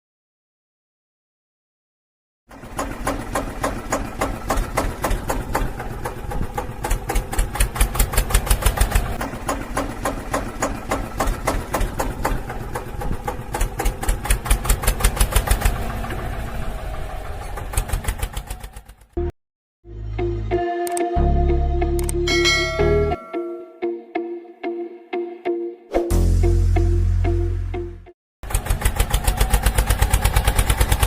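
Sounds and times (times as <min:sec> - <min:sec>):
small engine chugging: 0:02.5 - 0:19.3, 0:28.4 - 0:31.0.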